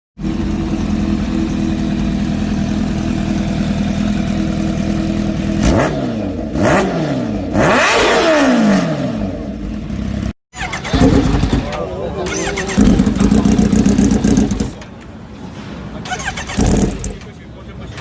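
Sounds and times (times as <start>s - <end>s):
motorcycle engine idling: 0.2s - 5.6s, 9.4s - 14.8s, 16.5s - 17.3s
motorcycle engine revving: 0.2s - 14.8s, 16.1s - 17.3s.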